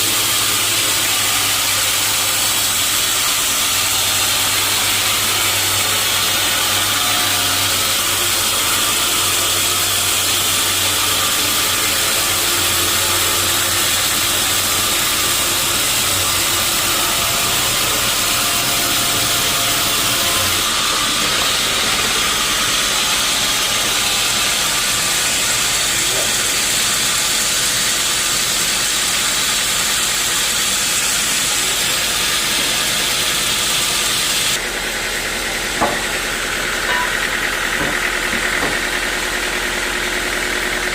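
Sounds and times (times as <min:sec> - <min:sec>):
sawmill saw cutting wood: 0:00.0 - 0:40.9.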